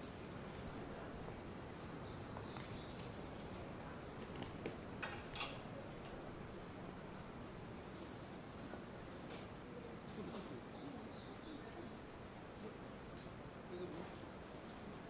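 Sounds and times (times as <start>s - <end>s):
background hiss: 0.0s - 15.0s
bird high chirps: 7.7s - 9.5s.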